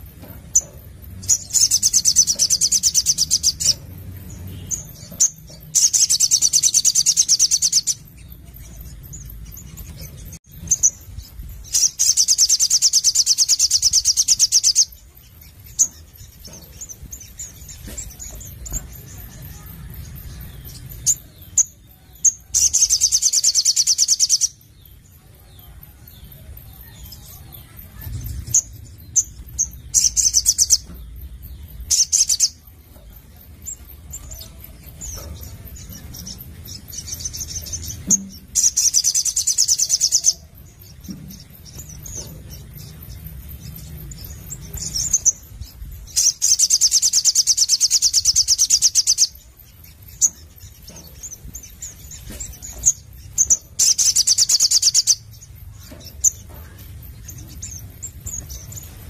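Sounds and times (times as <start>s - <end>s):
sharp bird chips: 0.0s - 25.4s, 26.7s - 59.0s.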